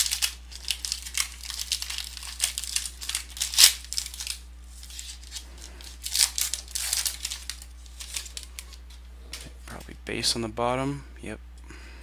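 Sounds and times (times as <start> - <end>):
plastic wrapper crinkling: 0.0 - 9.5
plastic wrapper ripping: 0.0 - 9.5.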